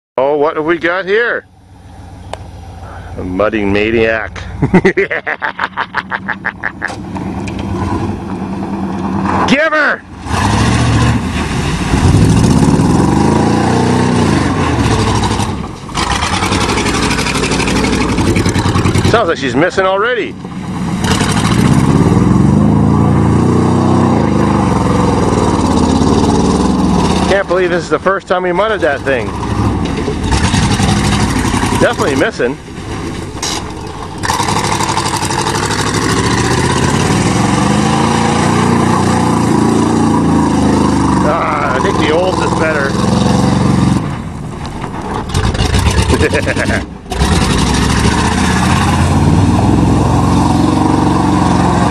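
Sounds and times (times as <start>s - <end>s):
pickup engine revving hard: 7.7s - 19.5s, 20.7s - 27.8s, 28.8s - 44.2s, 45.2s - 51.9s.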